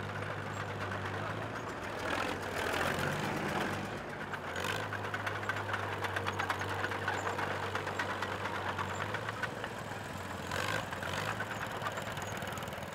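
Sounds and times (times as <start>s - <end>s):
tractor engine idling: 3.7s - 12.9s.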